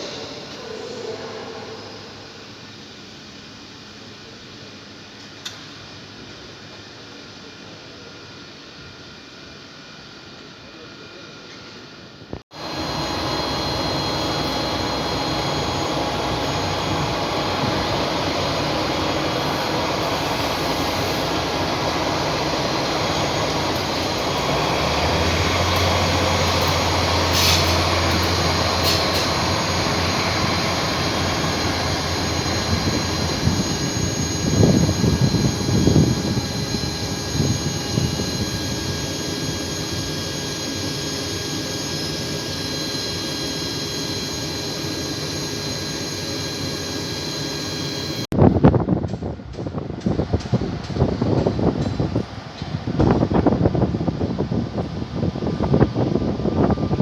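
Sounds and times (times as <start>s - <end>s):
electric train motor and blower: 12.6s - 48.2s
high whining tones: 12.6s - 48.3s.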